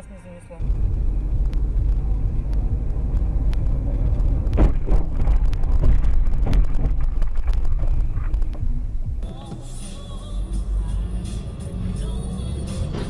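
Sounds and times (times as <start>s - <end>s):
car engine and road noise: 0.0s - 13.0s
clicks and knocks: 1.4s - 9.4s.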